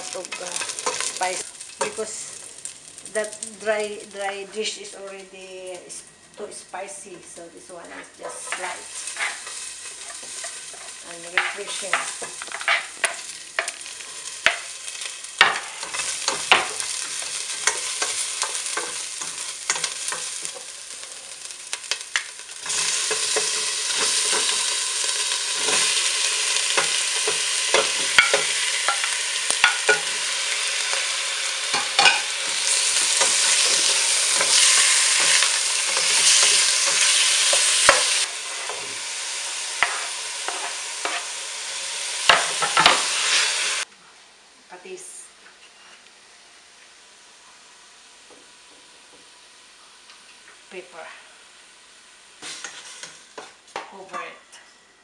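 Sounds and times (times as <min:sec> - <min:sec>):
chicken sizzling in oil: 0:00.0 - 0:04.0, 0:08.4 - 0:43.9
utensil scraping a pot: 0:07.8 - 0:13.7.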